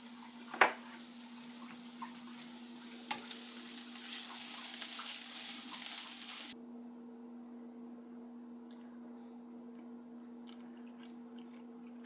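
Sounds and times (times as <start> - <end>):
utensil stirring against pan: 0.0 - 6.6
vegetables sizzling in a pan: 0.0 - 6.6.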